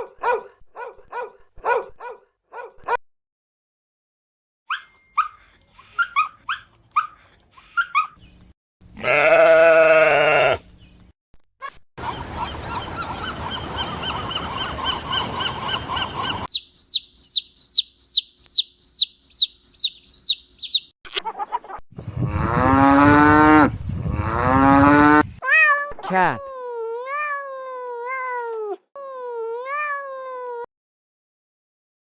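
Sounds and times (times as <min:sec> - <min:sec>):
animal high chirps: 0:04.7 - 0:08.3, 0:16.4 - 0:20.9
overlapping chirping calls: 0:04.7 - 0:08.5, 0:12.4 - 0:20.9
drawn-out pitched animal call: 0:09.0 - 0:10.7.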